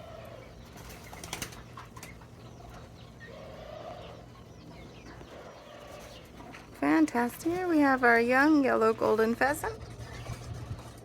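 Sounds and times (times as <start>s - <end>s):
pigeon cooing: 0.0s - 6.6s
wing flaps: 0.8s - 2.2s.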